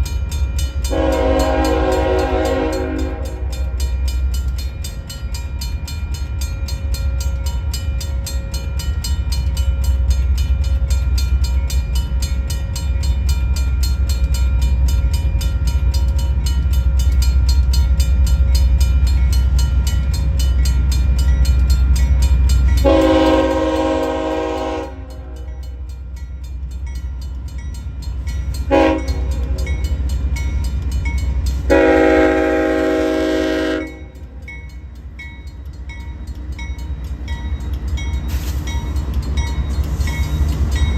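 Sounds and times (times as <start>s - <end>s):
diesel locomotive engine rumble: 0.0s - 40.9s
train air horn blasts: 0.9s - 3.7s, 22.8s - 25.6s, 28.7s - 29.7s, 31.7s - 34.2s.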